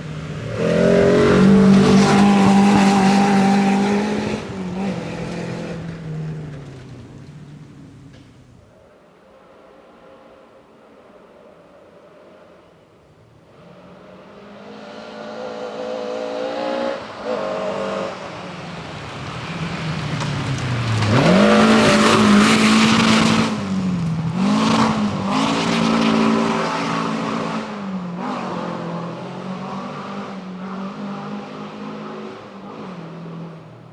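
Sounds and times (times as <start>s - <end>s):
rally car engine passing: 0.0s - 33.9s.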